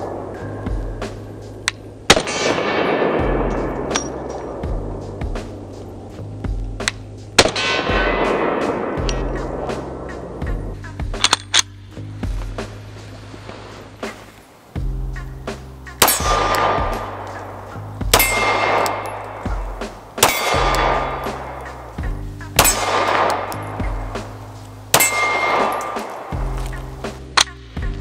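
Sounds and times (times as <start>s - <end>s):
background music: 0.0s - 28.0s
gunshots: 2.1s - 4.7s, 7.4s - 9.9s, 16.0s - 21.8s, 22.6s - 26.5s
steel target clanging: 16.0s - 21.9s, 22.5s - 26.3s.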